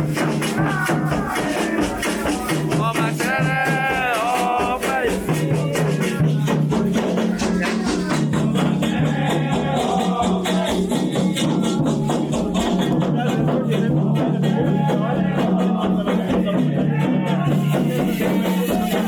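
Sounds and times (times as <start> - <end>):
rattle shaken rapidly: 0.0 - 12.9, 17.4 - 19.0
drums: 0.0 - 19.0
sung chant: 0.0 - 19.0.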